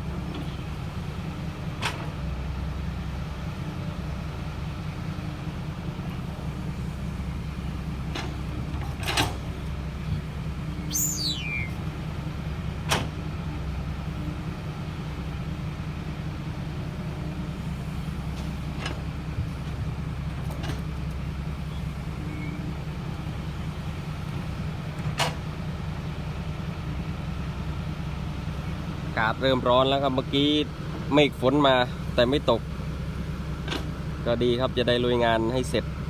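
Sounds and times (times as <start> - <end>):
truck engine droning: 2.4 - 36.0.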